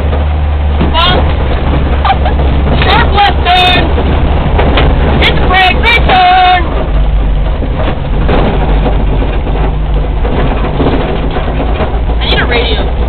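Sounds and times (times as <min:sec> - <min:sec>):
car engine rumbling: 0:00.0 - 0:13.0
road noise: 0:00.0 - 0:13.0.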